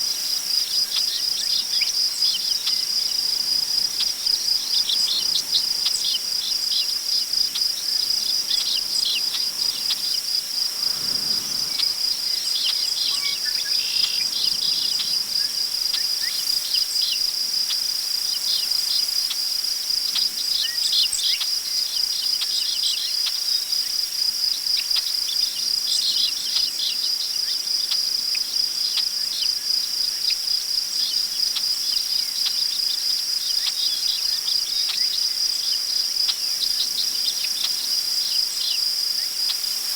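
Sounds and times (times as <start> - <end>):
wind rustling grass: 0.0 - 17.6
crickets trilling: 0.0 - 39.9.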